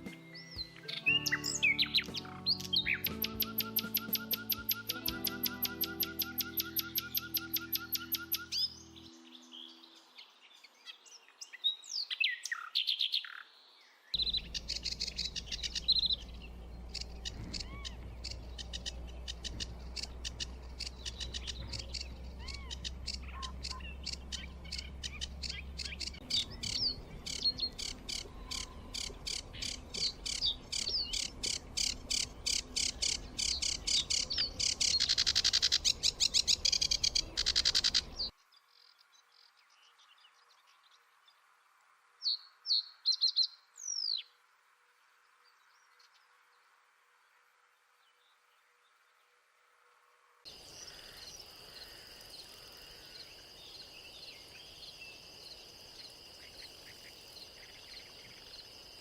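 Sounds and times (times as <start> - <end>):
birds chirping: 0.0 - 13.5, 14.2 - 41.0, 50.5 - 59.0
low steady rumble: 14.2 - 38.3.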